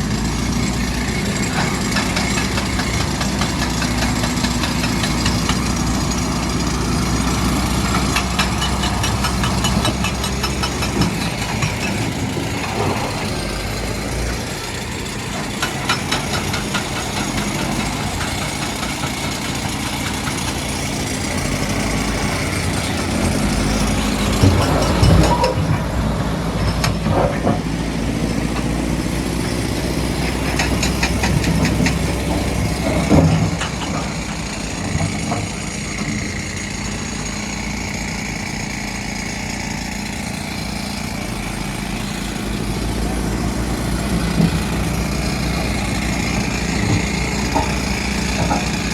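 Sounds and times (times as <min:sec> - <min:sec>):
heavy diesel machinery running: 0:00.0 - 0:48.9
loud knocks and clanks: 0:07.1 - 0:14.6, 0:15.2 - 0:36.4, 0:43.3 - 0:48.9.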